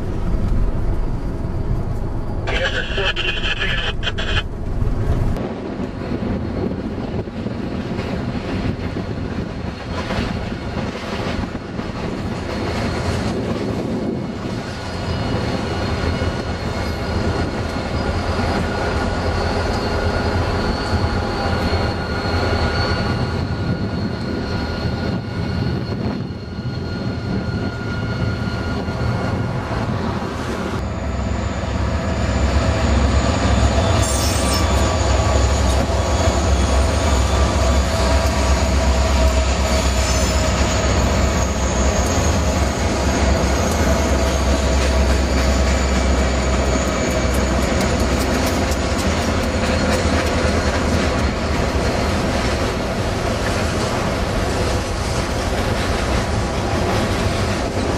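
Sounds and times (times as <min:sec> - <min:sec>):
train wheel squeal: 0:12.5 - 0:57.9
freight train cars clattering: 0:33.3 - 0:57.9.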